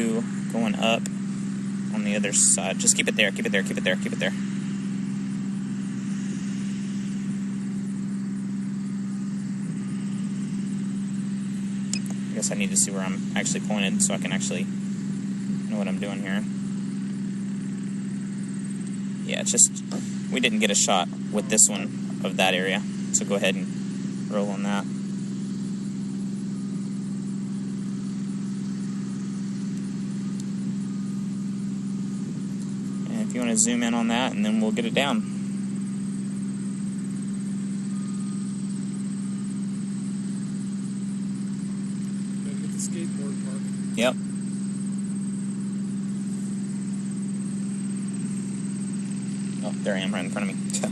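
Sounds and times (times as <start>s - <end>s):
engine idling: 0.0s - 50.9s
steady mechanical hum: 0.0s - 50.9s.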